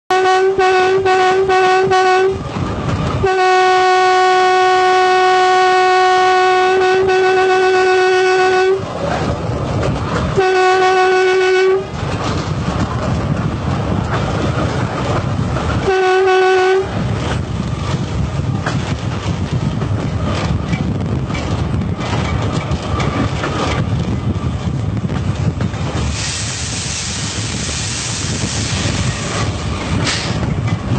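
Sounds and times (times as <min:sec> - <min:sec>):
train horn blasts: 0:00.1 - 0:02.4, 0:03.2 - 0:08.9, 0:10.4 - 0:12.0, 0:15.8 - 0:17.0
train running rumble: 0:00.1 - 0:30.9.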